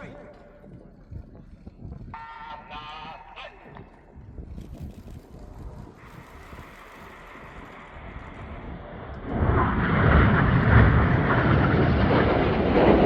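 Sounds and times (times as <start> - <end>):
jet roar: 5.1 - 13.0.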